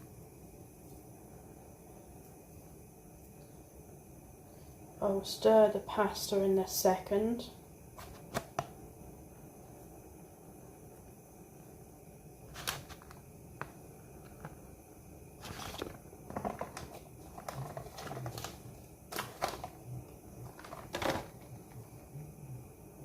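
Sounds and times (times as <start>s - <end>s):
utensil scraping a cooking pot: 15.4s - 19.7s.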